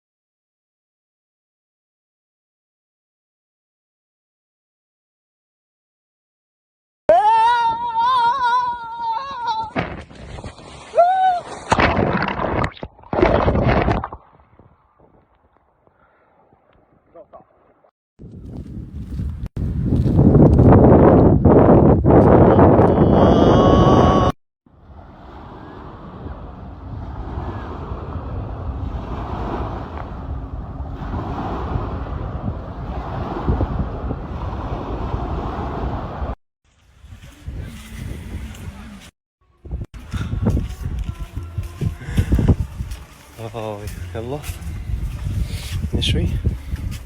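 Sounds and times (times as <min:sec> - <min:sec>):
wind buffeting microphone: 0:18.2 - 0:47.0
sea waves washing on shore: 0:24.8 - 0:36.4.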